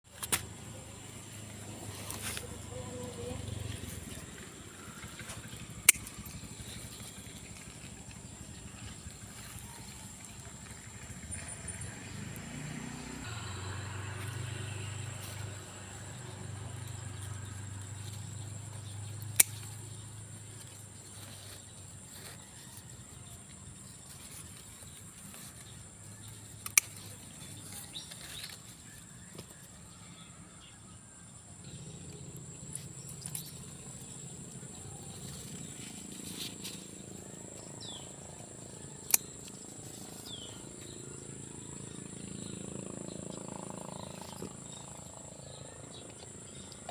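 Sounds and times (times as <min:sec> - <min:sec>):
stems snapping: 0:00.1 - 0:00.6, 0:05.2 - 0:08.2, 0:18.8 - 0:19.9, 0:26.3 - 0:28.7, 0:39.0 - 0:40.4.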